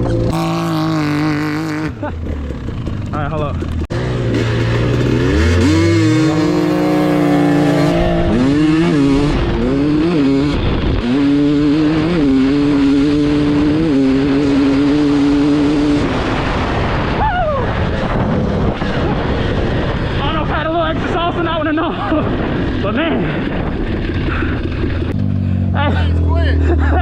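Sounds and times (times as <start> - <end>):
dirt bike engine revving: 0.0 - 17.2.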